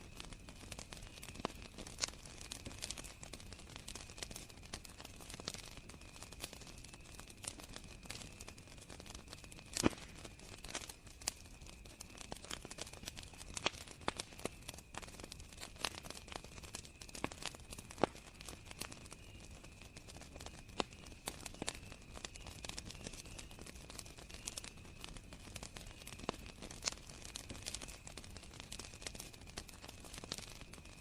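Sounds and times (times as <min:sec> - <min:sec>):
campfire crackling and popping: 0:00.0 - 0:31.0
crickets chirring: 0:15.7 - 0:30.8.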